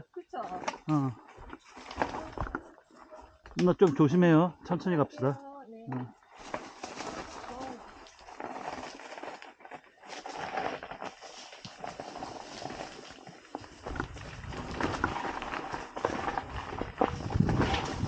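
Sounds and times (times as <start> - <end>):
bike tyres crunching on dirt: 6.2 - 18.0
bike clattering over stones: 6.3 - 18.0.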